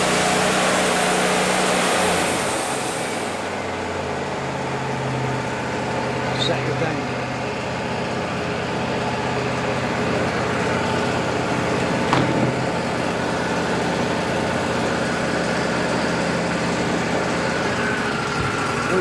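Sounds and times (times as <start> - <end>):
sawmill engine running: 0.0 - 19.0
sharp knock: 12.1 - 12.9.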